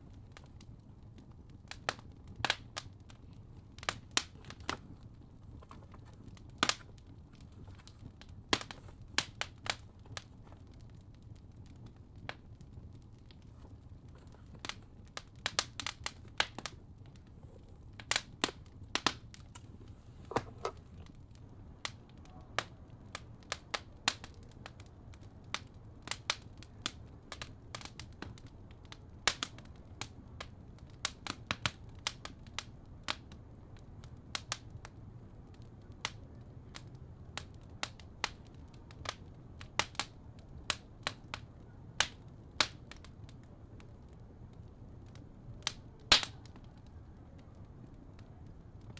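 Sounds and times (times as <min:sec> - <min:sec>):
fireplace crackling and popping: 0:00.0 - 0:48.9.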